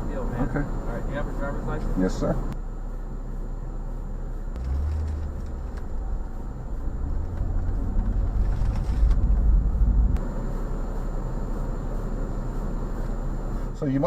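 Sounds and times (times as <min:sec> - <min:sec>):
low rumble: 0:02.5 - 0:12.0.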